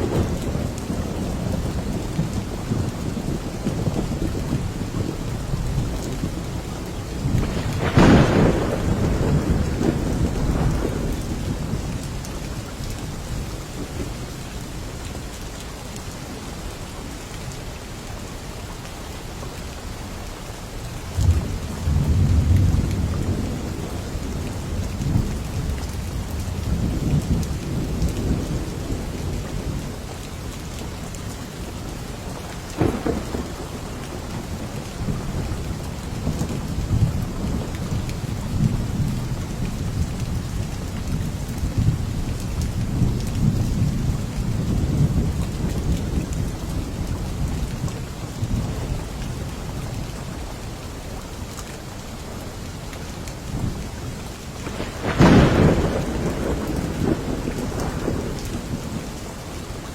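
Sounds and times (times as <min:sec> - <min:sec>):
low thunder rumble: 0:00.0 - 0:14.1, 0:21.1 - 0:30.1, 0:32.3 - 0:50.3, 0:54.6 - 0:59.9
heavy rain falling: 0:00.0 - 0:59.9
thunder crack: 0:07.4 - 0:11.4, 0:32.8 - 0:35.2, 0:54.6 - 0:58.7.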